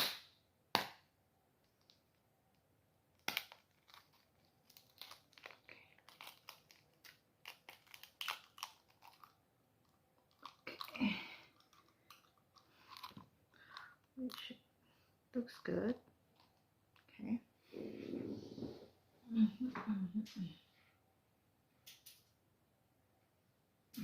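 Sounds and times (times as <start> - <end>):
chewing and crunching food: 3.2 - 14.6.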